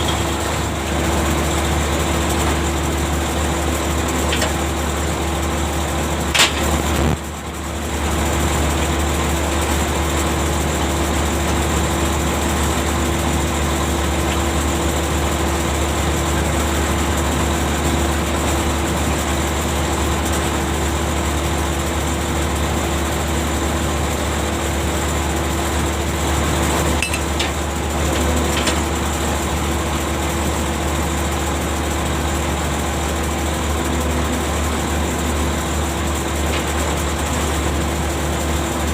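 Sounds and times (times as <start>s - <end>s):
machinery whine: 0.0s - 18.4s, 23.8s - 38.9s
ship's machinery humming: 0.0s - 38.9s.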